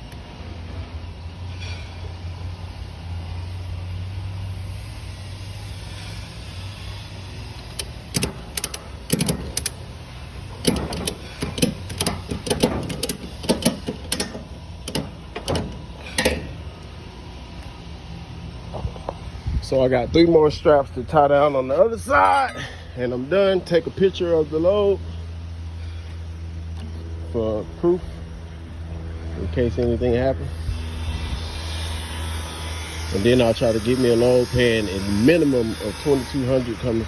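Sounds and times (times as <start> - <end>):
low engine hum: 0.0 - 22.0
ratchet strap clicking: 7.6 - 16.7.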